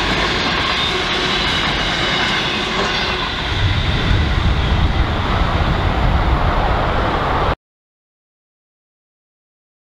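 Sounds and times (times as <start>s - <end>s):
train rolling over rails: 0.0s - 7.6s
low rumble: 3.5s - 7.6s.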